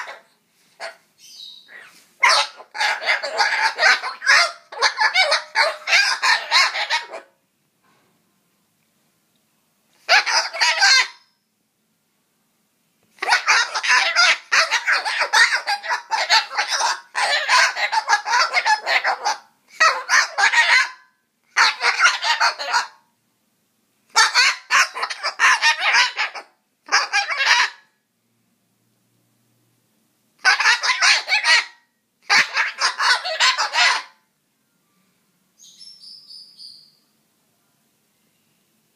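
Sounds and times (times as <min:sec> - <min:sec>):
cockatoo chattering calls: 0:00.0 - 0:07.3, 0:10.0 - 0:11.2, 0:13.2 - 0:21.0, 0:21.6 - 0:23.0, 0:24.1 - 0:27.8, 0:30.4 - 0:34.2
faint high chirps: 0:34.5 - 0:38.7.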